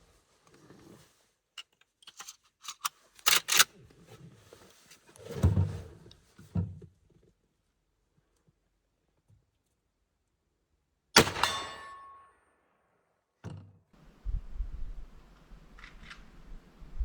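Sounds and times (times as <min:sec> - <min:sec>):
metallic clicks of rifle loading: 0:01.6 - 0:03.7, 0:14.1 - 0:17.0.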